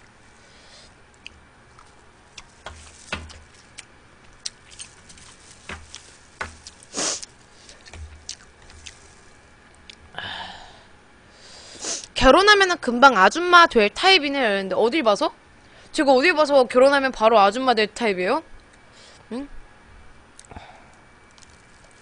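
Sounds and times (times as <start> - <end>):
soft noisy sound: 0.0 - 22.0
chewing and wet mouth noises: 1.1 - 10.0, 20.4 - 22.0.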